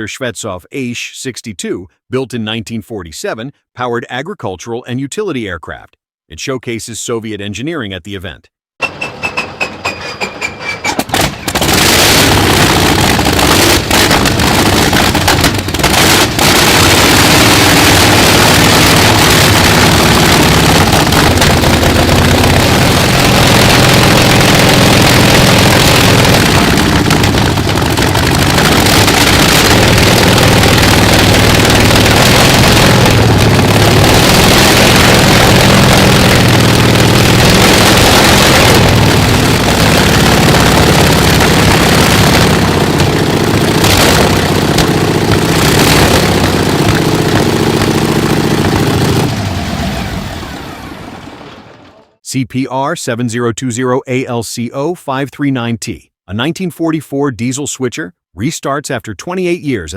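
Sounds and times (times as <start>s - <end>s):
radial aircraft engine running: 11.2s - 51.5s.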